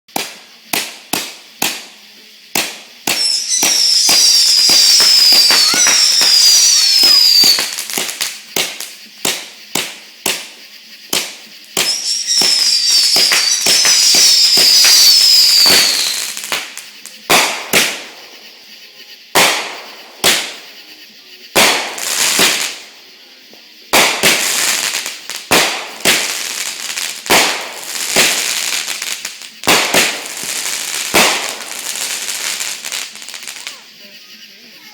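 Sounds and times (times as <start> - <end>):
firework sharp pops: 0.1 - 18.5, 19.3 - 20.9, 21.5 - 33.8
firework bangs and crackles: 0.1 - 34.9
firework hissing: 0.1 - 34.9
shrill falling whistles: 3.1 - 7.9, 11.8 - 16.4.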